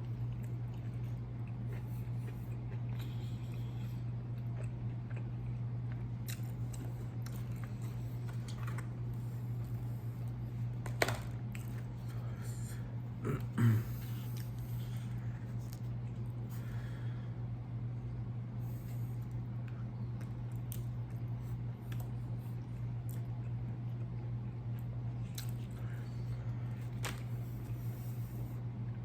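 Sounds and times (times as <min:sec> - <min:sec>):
low electrical hum: 0:00.0 - 0:29.0
wet chewing: 0:00.2 - 0:10.4
person humming or gulping: 0:13.2 - 0:14.4.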